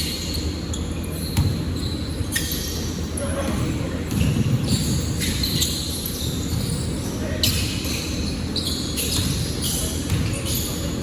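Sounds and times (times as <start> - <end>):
basketball bouncing on court: 1.3 - 2.0, 3.4 - 5.7, 9.0 - 10.7.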